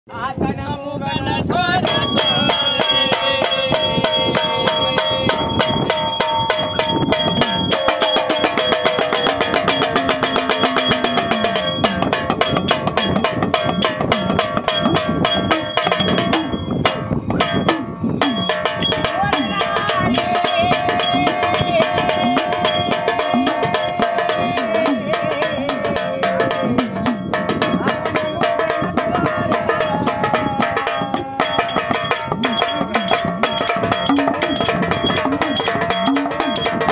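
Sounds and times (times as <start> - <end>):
fast percussion strokes: 1.8 - 36.9
long-held melodic line: 1.9 - 36.9.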